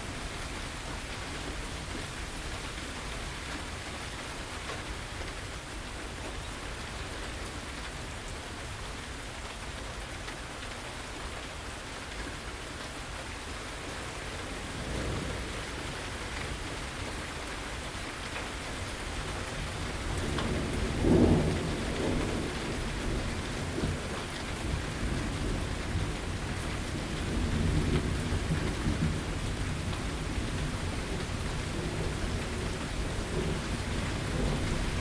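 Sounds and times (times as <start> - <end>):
heavy rain: 0.0 - 35.0
thunder rumbling: 14.5 - 17.1, 19.2 - 35.0.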